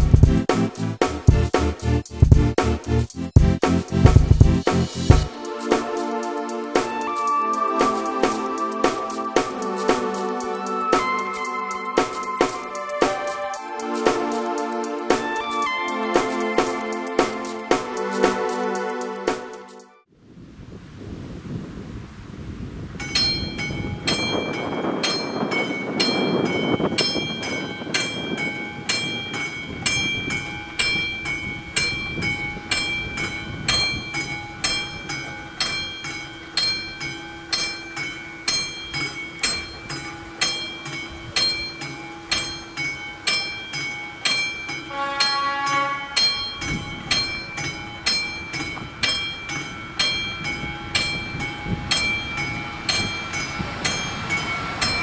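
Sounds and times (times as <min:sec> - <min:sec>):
level crossing bell ringing: 0:07.0 - 0:19.1, 0:23.1 - 0:55.0.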